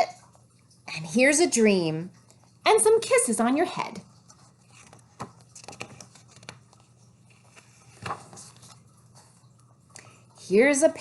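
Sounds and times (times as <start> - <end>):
paper pages rustling: 4.2 - 10.3.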